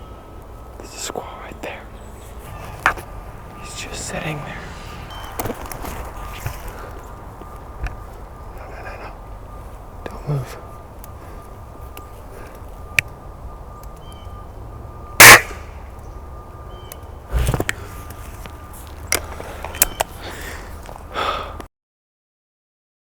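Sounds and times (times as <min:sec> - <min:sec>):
short calls: 0:00.0 - 0:21.6
air rifle shot: 0:17.3 - 0:17.9.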